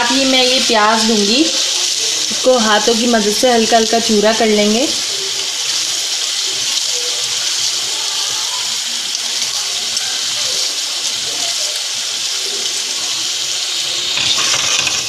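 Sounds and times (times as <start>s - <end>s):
masala sizzling in a pot: 0.0s - 15.0s.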